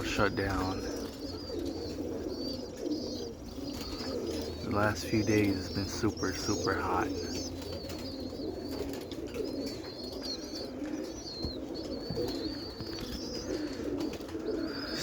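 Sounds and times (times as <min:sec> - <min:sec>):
birds chirping: 0:00.0 - 0:15.0
pigeons cooing: 0:00.0 - 0:15.0.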